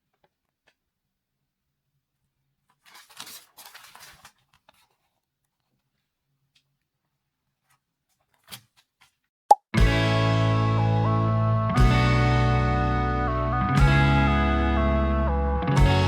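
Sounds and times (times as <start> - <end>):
plastic bag rustling: 2.7 - 5.2
music: 9.8 - 16.0.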